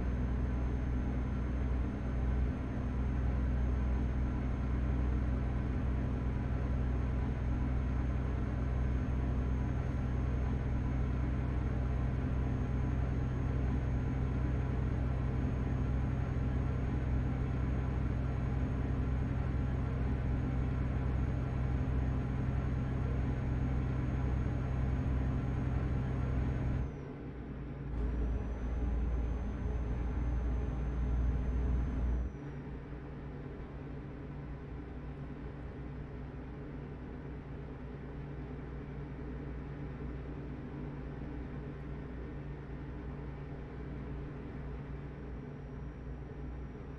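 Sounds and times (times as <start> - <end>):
truck engine droning: 0.0 - 26.9, 27.8 - 32.4.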